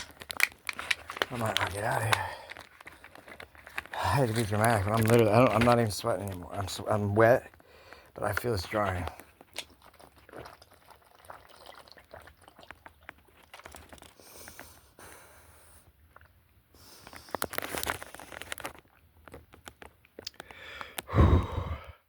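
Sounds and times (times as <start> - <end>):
rustling and crinkling: 0.0 - 10.5, 12.6 - 14.8, 16.8 - 20.6.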